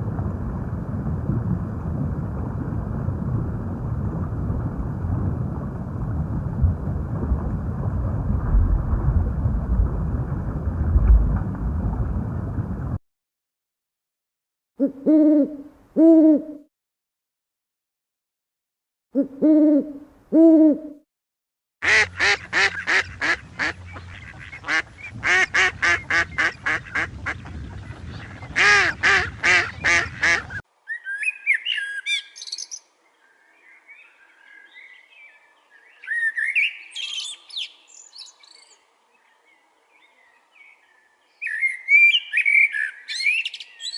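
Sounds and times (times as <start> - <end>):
low hoots: 14.8 - 16.7, 19.2 - 21.0.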